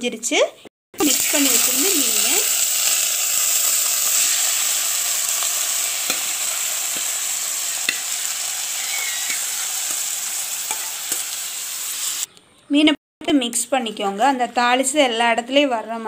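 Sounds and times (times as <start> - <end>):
hot oil sizzling: 1.0 - 12.3.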